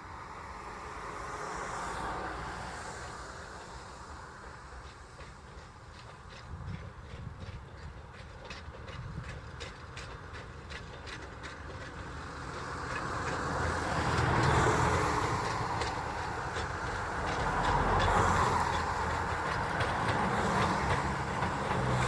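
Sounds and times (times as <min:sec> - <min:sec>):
train wheels clicking on rails: 0:00.0 - 0:22.0.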